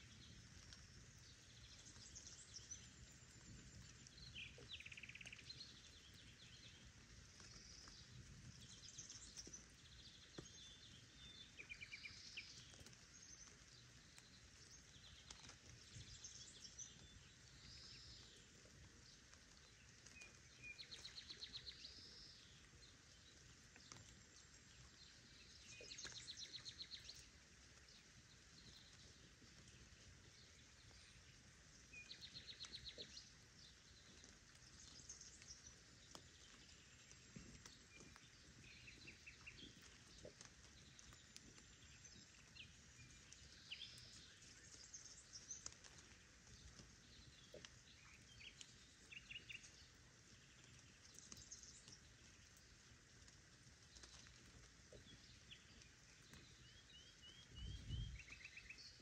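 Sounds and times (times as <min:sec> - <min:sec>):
soft steady background hiss: 0:00.0 - 0:59.0
songbirds singing and trilling: 0:00.0 - 0:59.0.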